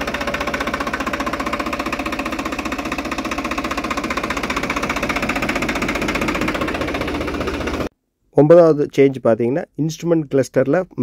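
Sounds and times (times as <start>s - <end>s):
tractor diesel engine running: 0.0s - 7.9s.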